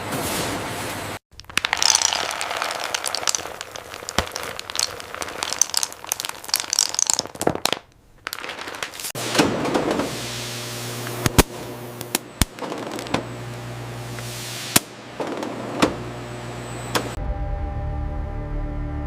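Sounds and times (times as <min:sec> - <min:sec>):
dense crackling and clicking: 0:01.3 - 0:09.2.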